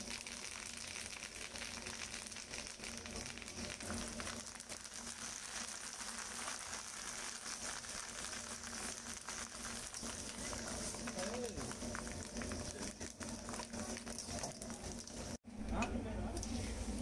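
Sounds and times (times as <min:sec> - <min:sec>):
chillies sizzling in hot oil: 0:00.0 - 0:15.4
metal spatula stirring: 0:07.2 - 0:15.4.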